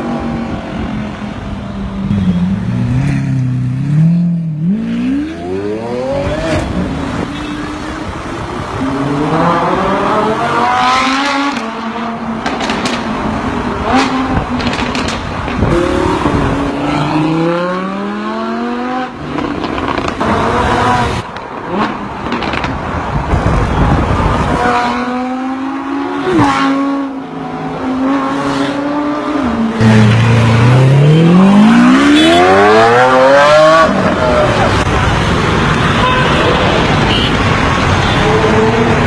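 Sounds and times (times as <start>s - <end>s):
car engine revving hard: 28.0s - 34.8s.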